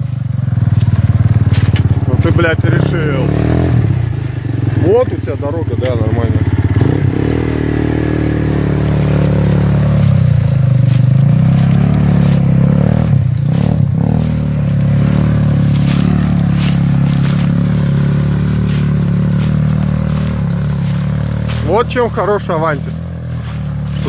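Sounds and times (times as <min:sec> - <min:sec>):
atv engine revving: 0:00.0 - 0:24.0
sharp clicks and scrapes: 0:00.7 - 0:02.5, 0:08.0 - 0:22.0.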